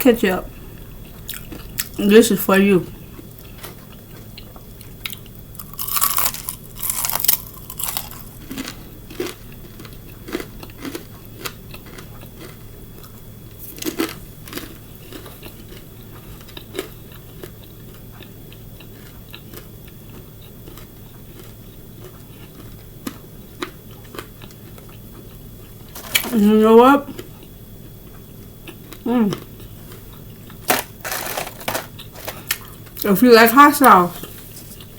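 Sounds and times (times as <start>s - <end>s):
wet chewing: 1.0s - 2.0s
loud crunching of fried food: 1.2s - 2.0s, 3.2s - 26.5s, 28.4s - 33.1s.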